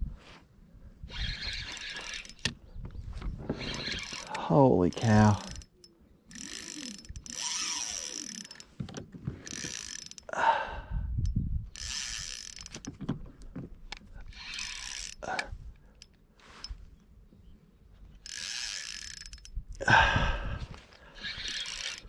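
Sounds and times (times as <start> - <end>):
fishing reel clicking: 1.1 - 2.5, 3.6 - 8.7, 9.5 - 10.3, 11.2 - 12.9, 14.3 - 16.7, 18.2 - 19.6, 21.2 - 22.0.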